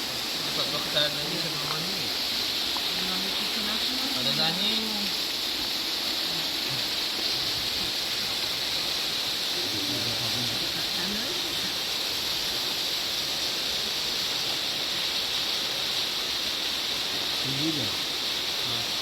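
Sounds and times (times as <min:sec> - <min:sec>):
waterfall rushing: 0:00.0 - 0:19.0
faint voices: 0:06.2 - 0:08.2, 0:09.4 - 0:11.8.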